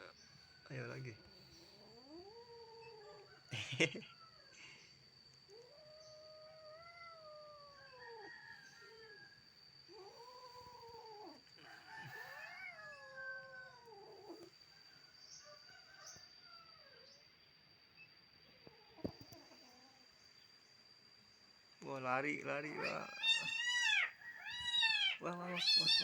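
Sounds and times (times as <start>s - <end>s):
cats caterwauling: 1.6s - 4.6s, 5.4s - 14.6s, 22.5s - 26.0s.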